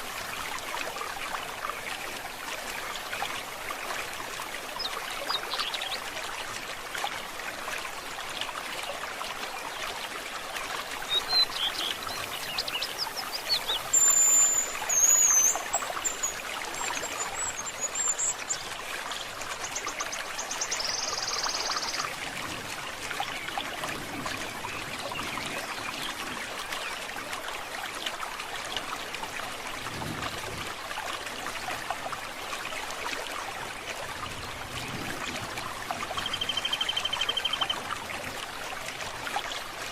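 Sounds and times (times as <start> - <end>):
stream trickling: 0.0 - 39.9
bird warbling song: 11.1 - 18.7, 19.6 - 22.1, 36.2 - 37.8
birds chirping: 11.2 - 18.6.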